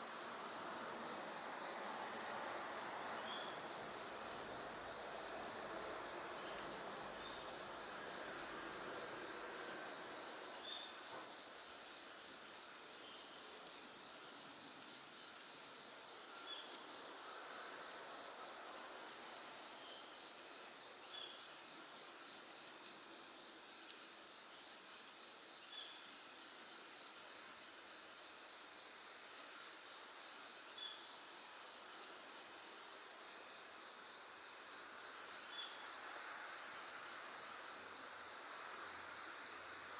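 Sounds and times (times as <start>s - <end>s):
campfire hiss: 0.0s - 39.9s
crickets chirping chorus: 0.0s - 39.9s
single cricket chirp: 3.1s - 5.0s, 6.1s - 39.9s.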